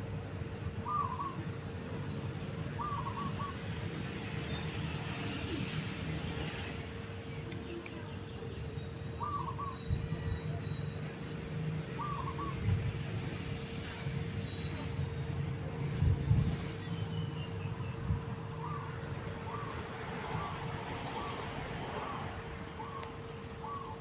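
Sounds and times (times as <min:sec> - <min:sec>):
bird calling: 0:00.8 - 0:01.5, 0:02.7 - 0:03.7, 0:09.2 - 0:09.9, 0:12.0 - 0:12.6, 0:20.4 - 0:24.0.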